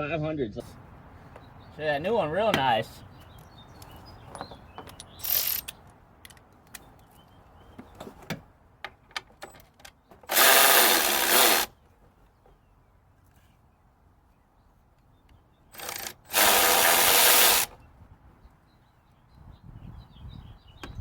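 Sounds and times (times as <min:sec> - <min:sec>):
tools clicking and knocking: 0:03.4 - 0:07.2
power tool running: 0:10.3 - 0:11.7, 0:15.8 - 0:17.8.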